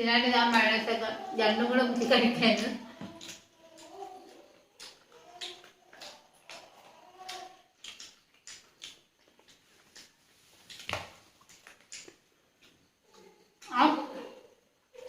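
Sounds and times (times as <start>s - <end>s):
chewing crunches: 3.0s - 13.7s
mouth clicks: 3.1s - 12.8s.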